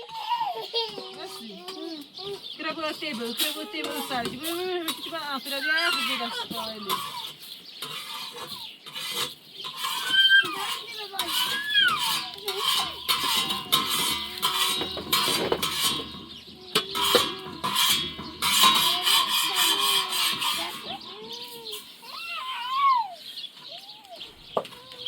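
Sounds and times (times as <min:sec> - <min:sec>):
chickens clucking: 0:00.0 - 0:25.0
metal dishes clinking: 0:03.0 - 0:21.9.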